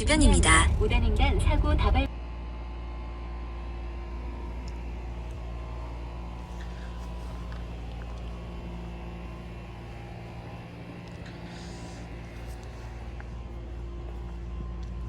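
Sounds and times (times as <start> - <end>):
car engine hum: 0.0 - 2.1, 2.8 - 15.0
road noise: 3.5 - 15.0.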